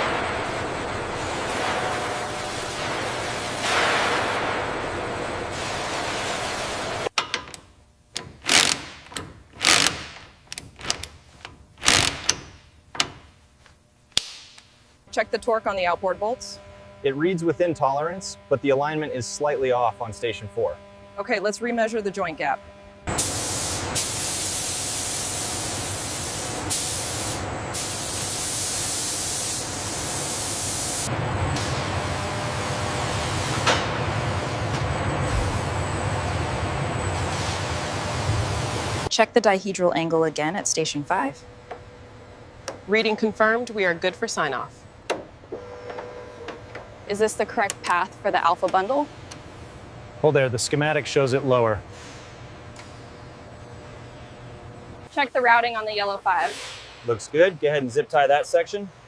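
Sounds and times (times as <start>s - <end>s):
power tool bursts: 8.4s - 10.3s, 11.8s - 12.4s
loud steady hiss: 23.1s - 31.1s
machinery hissing: 23.1s - 39.1s.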